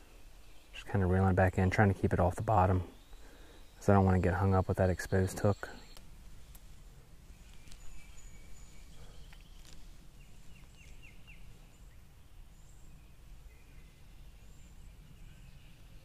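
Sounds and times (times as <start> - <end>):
bird calls: 0.0 - 16.0.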